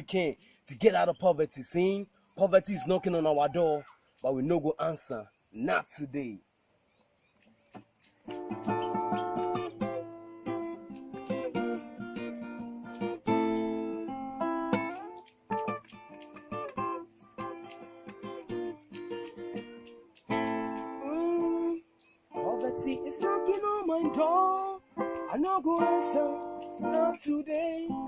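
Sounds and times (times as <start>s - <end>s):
acoustic guitar strumming: 8.3s - 28.0s.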